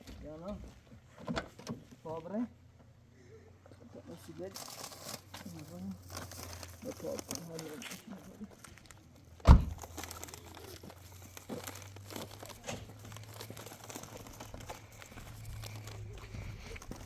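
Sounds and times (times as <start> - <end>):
rustling crinkling handling noise: 4.0 - 17.0.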